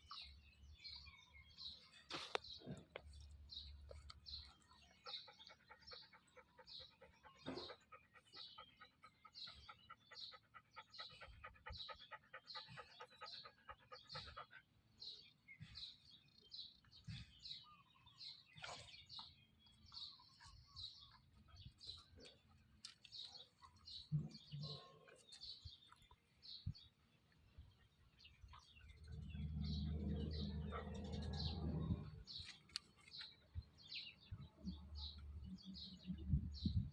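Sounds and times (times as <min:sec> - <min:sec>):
small birds chirping: 0:00.0 - 0:36.9
dog panting: 0:04.8 - 0:16.1.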